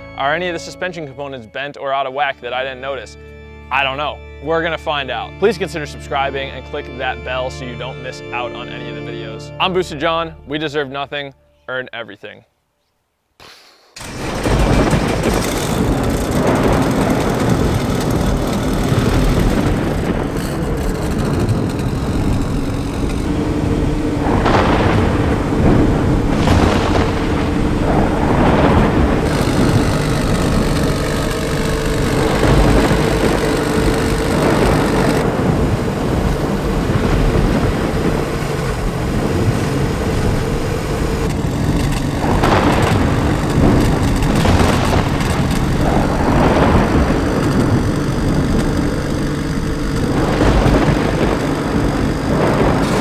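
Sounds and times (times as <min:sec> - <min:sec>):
car engine revving: 0:14.0 - 0:53.0.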